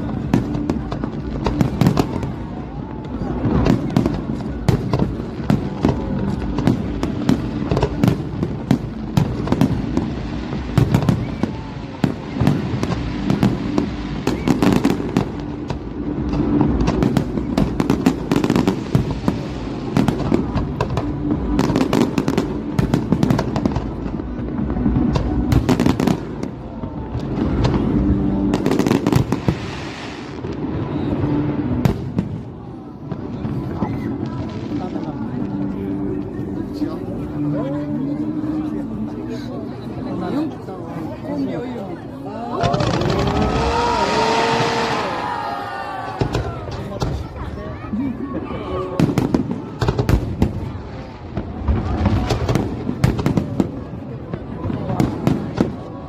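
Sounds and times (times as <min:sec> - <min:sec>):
low rumble: 0:00.0 - 0:28.7
fireworks bursting and crackling: 0:00.0 - 0:56.0
sharp fireworks bangs: 0:49.0 - 0:56.0.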